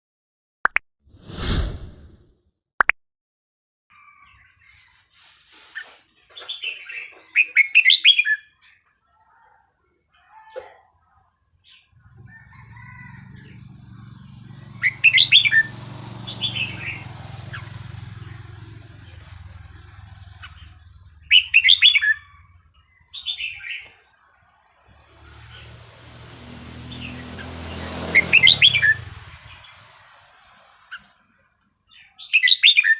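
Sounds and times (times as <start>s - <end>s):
bird singing whistled notes: 6.5s - 8.7s, 19.8s - 24.0s.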